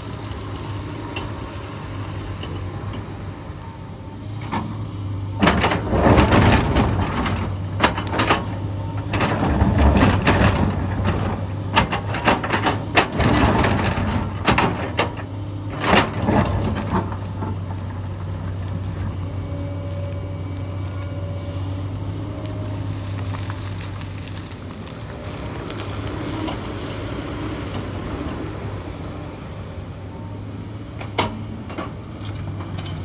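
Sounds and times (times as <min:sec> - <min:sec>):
excavator engine running: 0:00.0 - 0:33.0
rock and soil crunching: 0:22.2 - 0:28.2.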